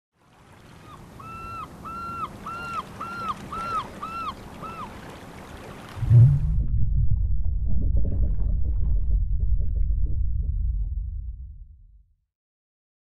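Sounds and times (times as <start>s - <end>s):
bird calling short arched cries: 0.8s - 5.0s
loud deep rumble: 6.0s - 12.0s.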